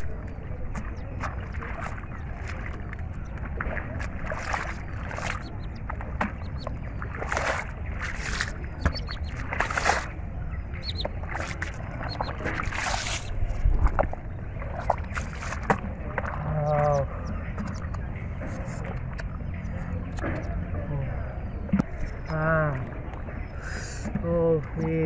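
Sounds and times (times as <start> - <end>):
low rumble: 0.0 - 23.7
hands splashing in water: 1.2 - 10.2, 11.2 - 17.0.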